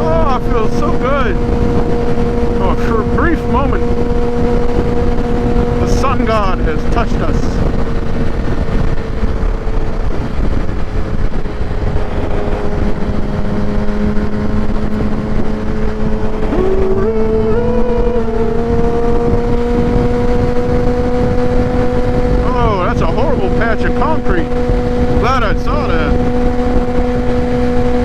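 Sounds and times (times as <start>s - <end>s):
motorcycle engine cruising: 0.0s - 28.0s
stepped rising tone: 0.0s - 28.0s
wind rushing on microphone: 0.0s - 28.0s.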